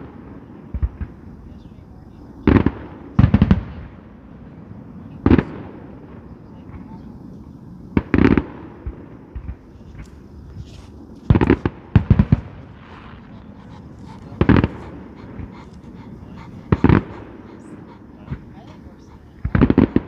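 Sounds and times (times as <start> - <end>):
faint fireworks pops: 7.9 - 13.3.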